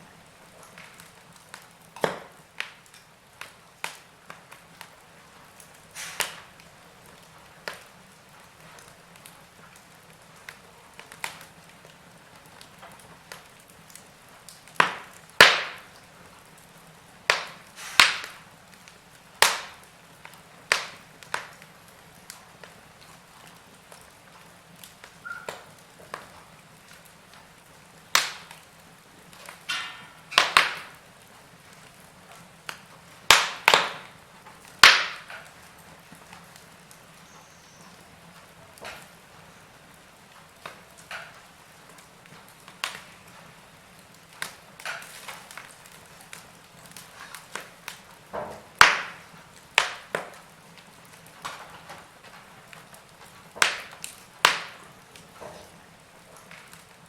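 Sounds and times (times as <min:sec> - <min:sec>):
faint steady hiss: 0:00.0 - 0:57.0
logs crackling and popping: 0:00.0 - 0:57.0.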